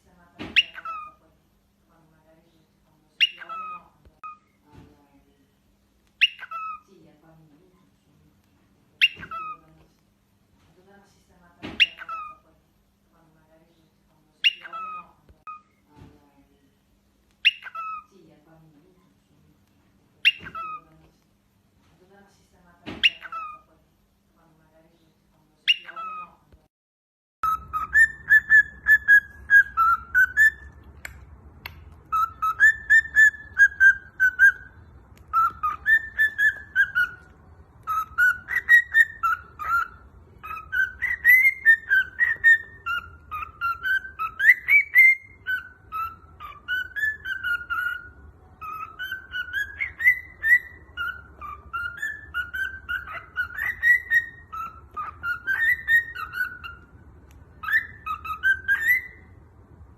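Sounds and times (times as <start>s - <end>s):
cockatiel whistling a tune: 6.2s - 6.8s, 9.0s - 9.6s, 11.8s - 12.4s, 17.4s - 18.1s, 20.3s - 20.8s, 23.0s - 23.6s, 27.4s - 56.9s, 57.6s - 59.3s.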